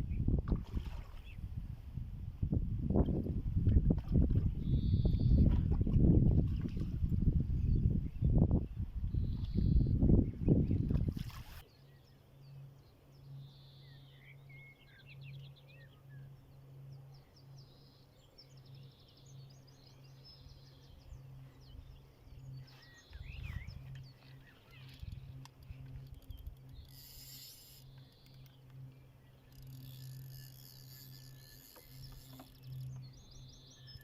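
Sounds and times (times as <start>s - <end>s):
steady low hum: 0.0s - 34.0s
songbirds chirping and trilling: 3.1s - 34.0s.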